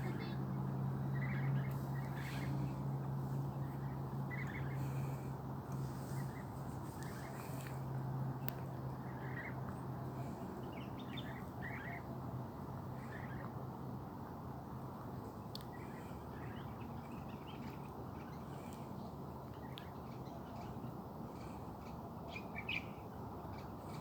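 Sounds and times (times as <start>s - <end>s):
birds chirping: 0.0s - 7.8s.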